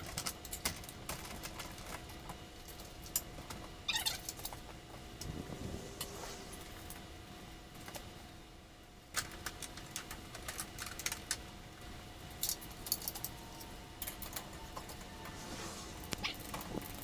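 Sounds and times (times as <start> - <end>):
faint steady hum: 0.0 - 17.0
metal parts and tools clinking: 12.4 - 13.4.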